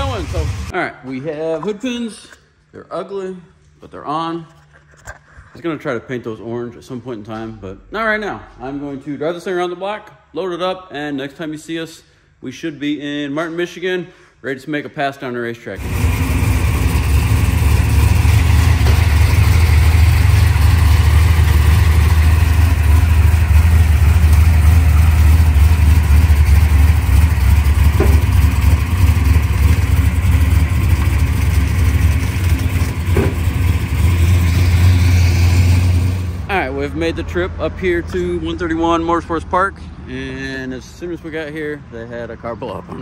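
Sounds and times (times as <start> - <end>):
car engine idling: 0.0 - 0.7, 15.8 - 39.4.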